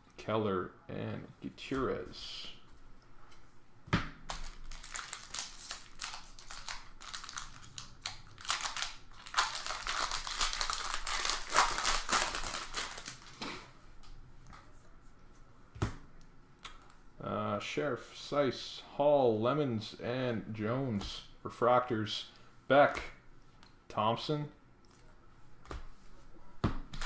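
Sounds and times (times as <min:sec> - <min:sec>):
wrappers crinkling and tearing: 0:04.3 - 0:13.6.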